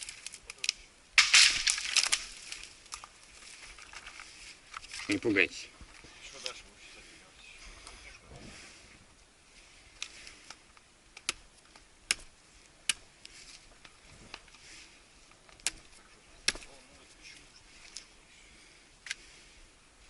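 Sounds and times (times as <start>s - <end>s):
sharp dry cracks and clicks: 0.0s - 5.2s, 10.0s - 14.6s, 15.4s - 16.9s.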